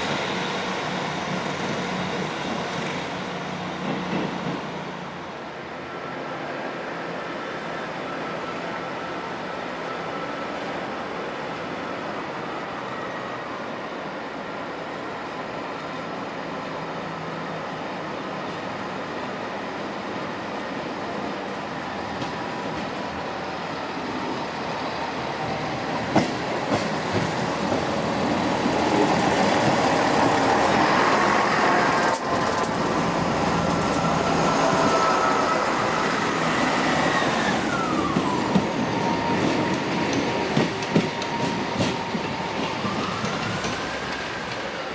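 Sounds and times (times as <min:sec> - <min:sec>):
diesel train passing: 0:00.0 - 0:44.9
train wheels clicking: 0:24.0 - 0:44.9.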